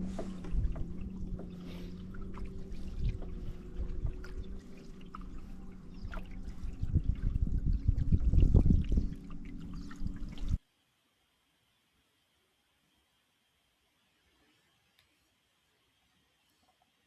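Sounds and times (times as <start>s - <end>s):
paddle splashing water: 0.0s - 10.6s
steady low hum: 0.0s - 10.6s.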